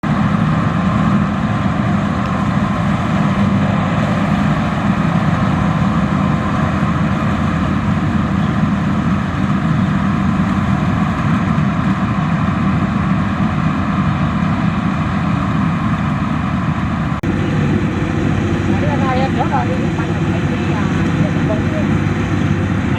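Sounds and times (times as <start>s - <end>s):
harvester engine drone: 0.0s - 22.9s.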